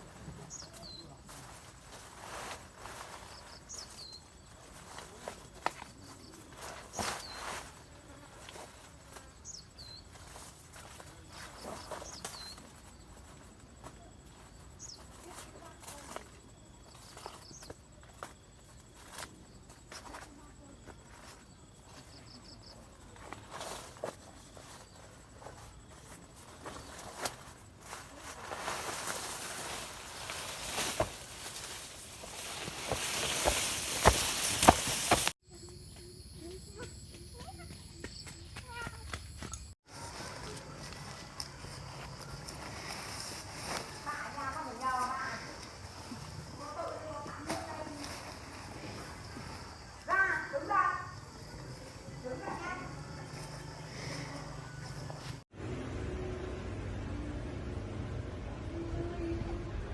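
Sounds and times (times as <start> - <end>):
soft rustles: 0.0 - 35.4, 39.9 - 55.5.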